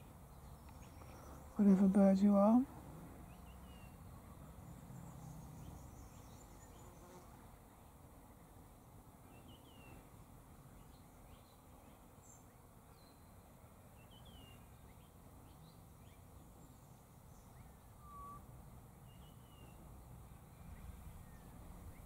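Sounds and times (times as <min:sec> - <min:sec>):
short clear whistle: 0:18.0 - 0:18.4.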